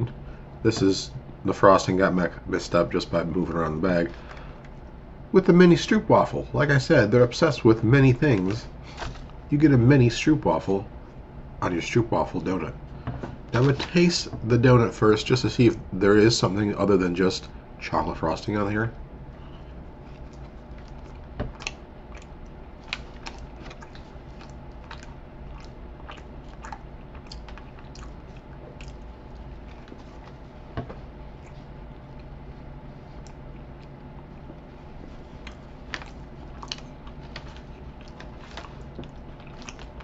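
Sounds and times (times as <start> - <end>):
low steady hum: 0.0 - 40.0
man chewing: 19.3 - 40.0
mouth clicks and smacks: 20.2 - 30.4.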